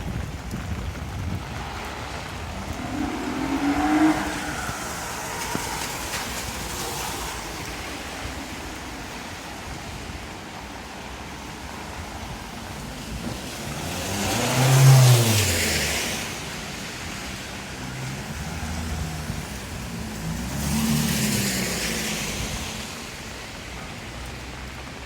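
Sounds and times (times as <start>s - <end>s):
steady rain hiss: 0.0s - 25.0s
tyre hiss on wet road: 0.1s - 25.0s
vehicle approaching: 1.4s - 9.4s, 13.2s - 23.1s
car driving past: 1.7s - 8.7s, 13.4s - 22.9s.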